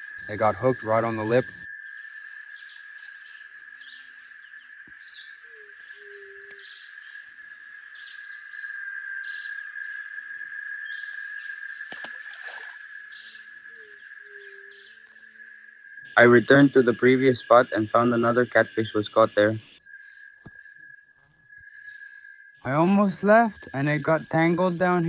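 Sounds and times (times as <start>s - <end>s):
high insect drone: 0.0s - 25.0s
short bird chirps: 11.9s - 15.2s.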